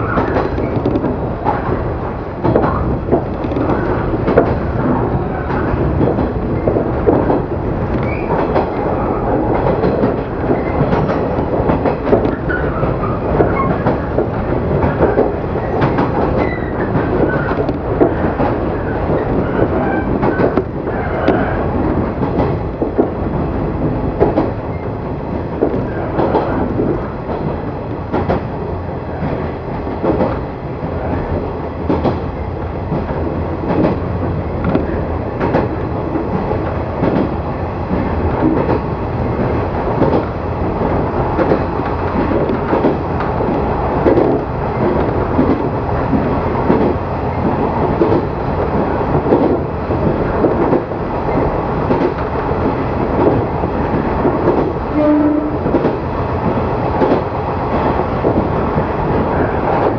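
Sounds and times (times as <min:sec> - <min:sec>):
wheel clatter over rail joints: 0:00.0 - 0:59.9
wheels rolling on rails: 0:37.9 - 0:59.9.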